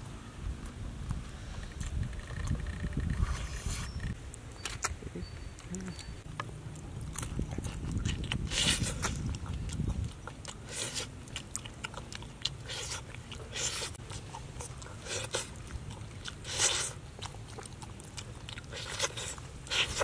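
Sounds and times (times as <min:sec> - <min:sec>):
person chewing crunchy food: 0:05.6 - 0:20.0
meat tearing by hand: 0:07.1 - 0:14.0.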